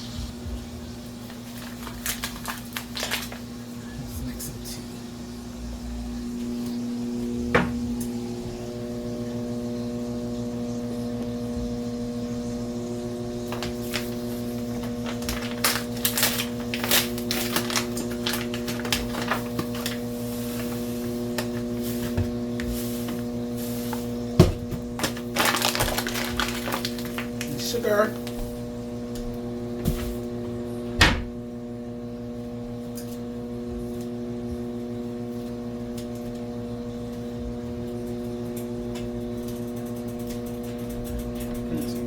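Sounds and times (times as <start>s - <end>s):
steak crackling in a hot pan: 0.0s - 3.8s, 13.0s - 28.6s
kitchen appliance hum: 0.0s - 42.0s.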